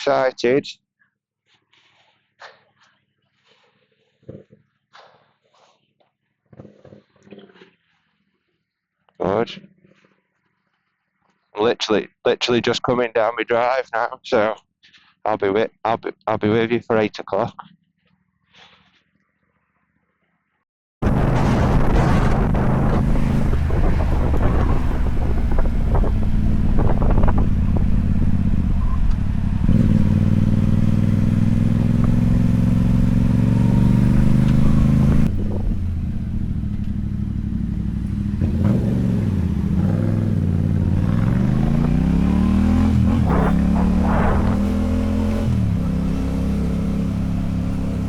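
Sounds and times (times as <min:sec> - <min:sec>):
motorcycle engine running: 0:21.0 - 0:48.0.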